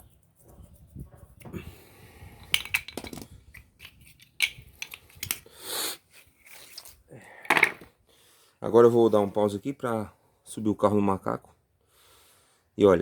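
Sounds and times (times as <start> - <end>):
hand scraping: 0.0 - 7.1
clicks and clinks of small parts: 2.4 - 5.5.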